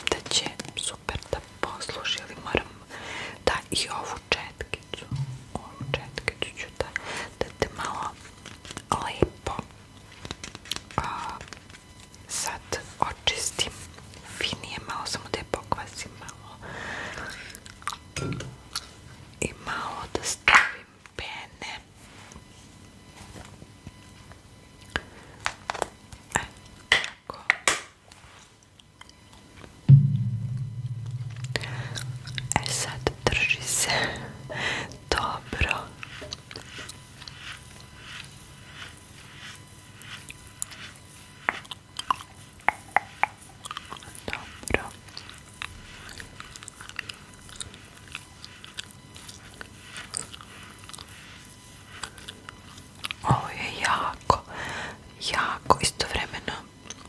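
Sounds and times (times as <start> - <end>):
gum chewing wet clicks: 41.4 - 51.0
chewing gum mouth clicks: 41.5 - 44.2.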